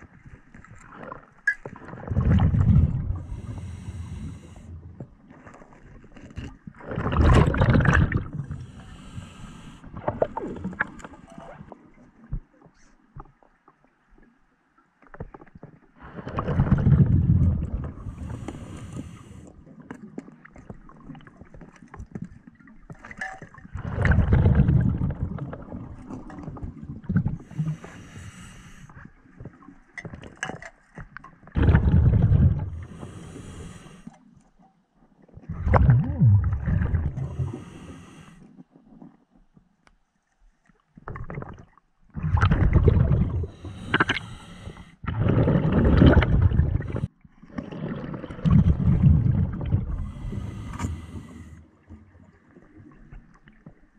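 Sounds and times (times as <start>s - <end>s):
exhaled bubbles underwater: 0.0s - 5.5s, 6.3s - 12.4s, 16.0s - 28.1s, 31.4s - 34.0s, 35.3s - 39.1s, 41.1s - 53.9s.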